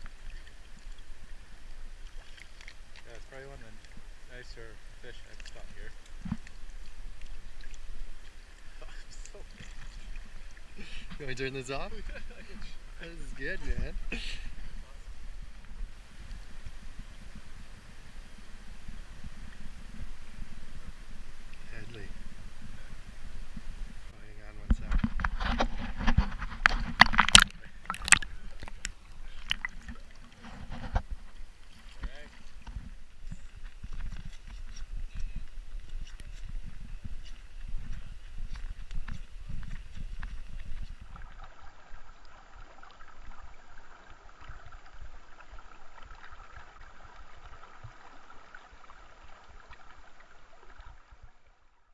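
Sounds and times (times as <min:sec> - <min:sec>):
low thumps on microphone: 0:22.2 - 0:31.4
irregular knocks clicks and crunching: 0:24.8 - 0:29.8
river water rushing: 0:26.6 - 0:33.9.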